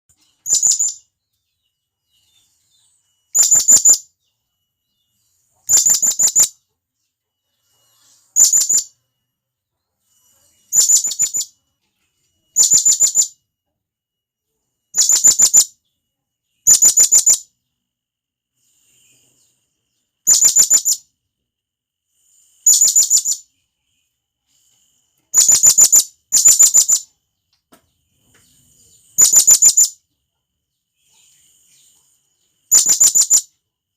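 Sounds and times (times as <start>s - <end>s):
parrot shrill calls: 3.4s - 4.0s, 5.7s - 6.5s, 25.4s - 27.1s, 29.2s - 30.0s, 32.7s - 33.5s.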